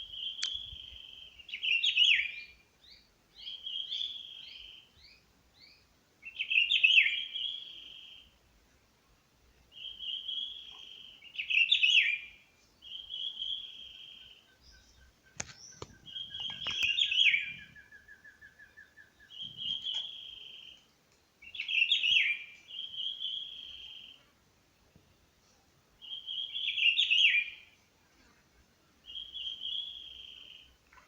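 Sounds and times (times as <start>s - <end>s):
songbird singing: 0.0s - 31.0s
lower rapid bird notes: 12.8s - 24.2s
sharp clicks: 15.4s - 17.0s.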